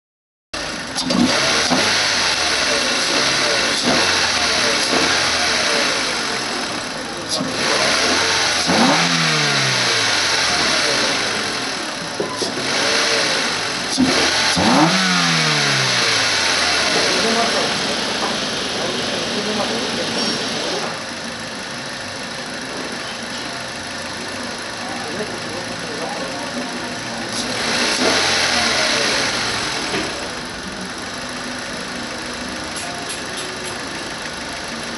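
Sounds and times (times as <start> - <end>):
car engine revving: 0.6 - 34.9.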